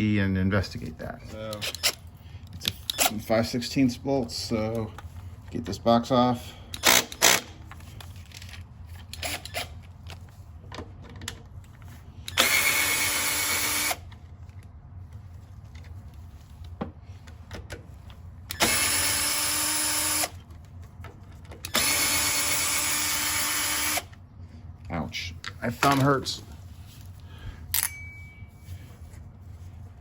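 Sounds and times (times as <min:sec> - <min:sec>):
power drill running: 0:06.8 - 0:07.5, 0:12.3 - 0:14.0, 0:18.5 - 0:20.4, 0:21.6 - 0:24.2.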